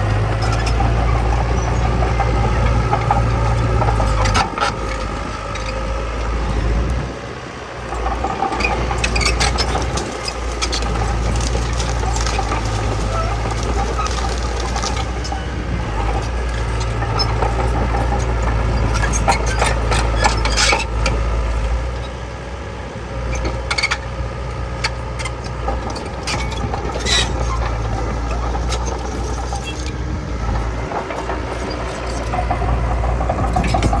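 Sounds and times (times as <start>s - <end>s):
diesel machine running: 0.0s - 34.0s
metal clanks and knocks: 25.2s - 34.0s.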